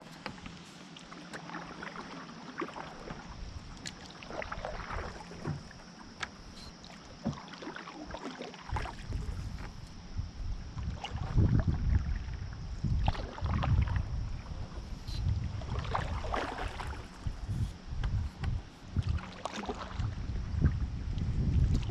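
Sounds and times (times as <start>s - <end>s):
knocks and clicks around canoe: 0.0s - 10.1s, 15.1s - 21.9s
wind buffeting microphone: 8.7s - 21.9s.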